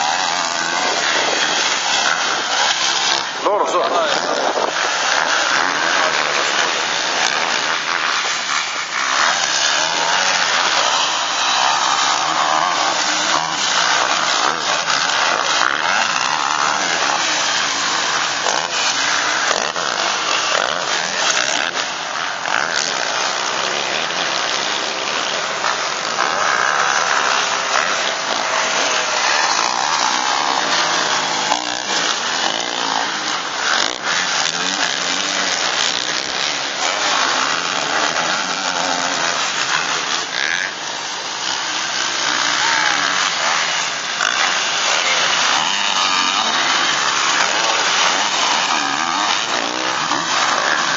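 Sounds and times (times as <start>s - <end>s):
motocross bike engines racing: 0.0s - 50.9s.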